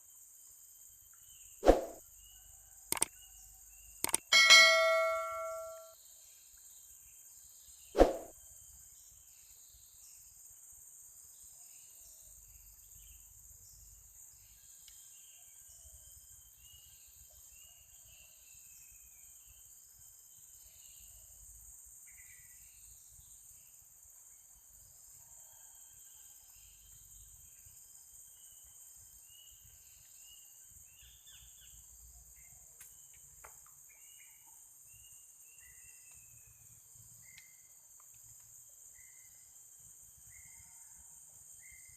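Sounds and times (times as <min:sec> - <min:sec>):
insects droning: 0:00.0 - 0:41.9
bird chirps: 0:01.1 - 0:06.0.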